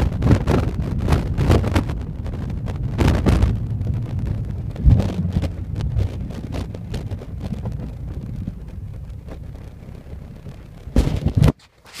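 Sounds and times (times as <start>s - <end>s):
car engine and exhaust drone: 0.0s - 12.0s
loud thump: 4.6s - 8.8s.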